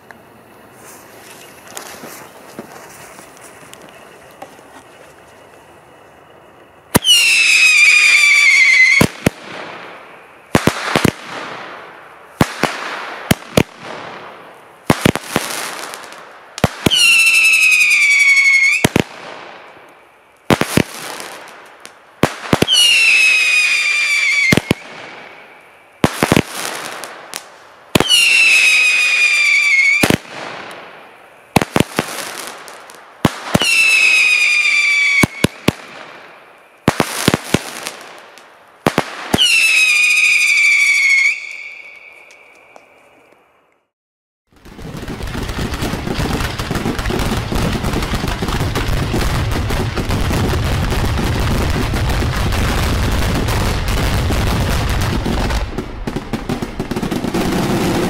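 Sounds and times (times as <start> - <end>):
whistling firework shot: 6.9 - 38.2, 38.9 - 43.2
fireworks shots: 6.9 - 42.3, 44.5 - 58.0.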